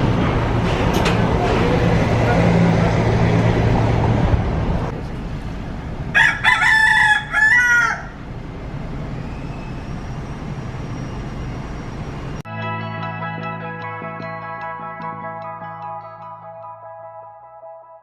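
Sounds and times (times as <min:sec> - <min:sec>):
vehicle engine hum: 0:00.0 - 0:12.5
street noise: 0:00.0 - 0:17.8
rooster crowing: 0:06.1 - 0:08.2.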